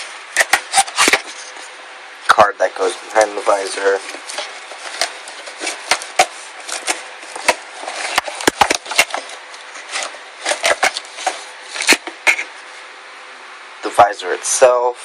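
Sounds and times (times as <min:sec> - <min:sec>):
packaging rustling: 0:00.0 - 0:01.7, 0:02.8 - 0:12.6.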